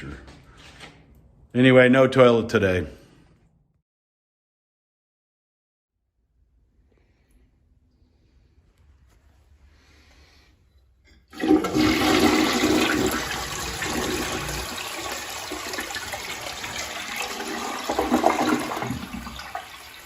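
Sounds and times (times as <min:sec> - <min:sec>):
toilet flushing: 0:11.2 - 0:20.0.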